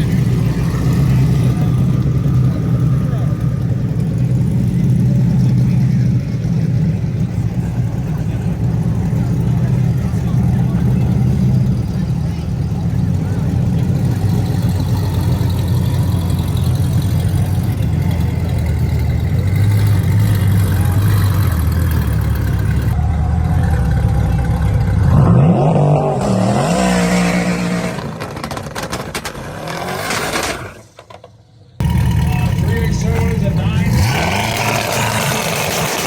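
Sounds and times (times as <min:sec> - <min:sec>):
car engine accelerating: 0:00.0 - 0:36.0.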